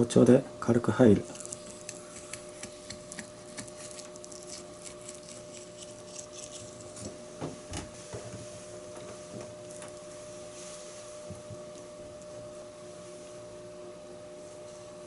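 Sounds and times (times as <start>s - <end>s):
steady hum: 0.0s - 15.0s
knife cutting through fish bones: 1.4s - 7.1s.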